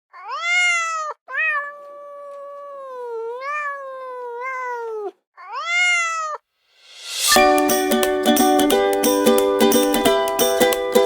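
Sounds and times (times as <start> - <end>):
cat meowing: 0.1 - 6.5.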